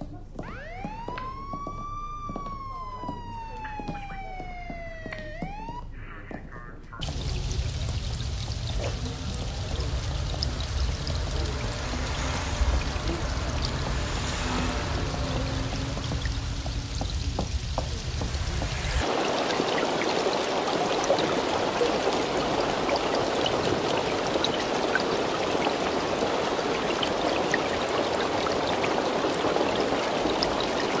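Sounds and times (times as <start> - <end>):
low traffic rumble: 7.0 - 31.0
rain on window glass: 7.0 - 31.0.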